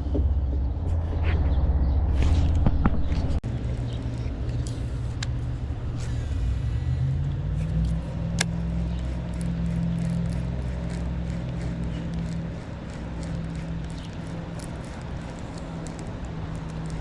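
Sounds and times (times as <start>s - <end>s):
motor humming: 3.5s - 17.0s.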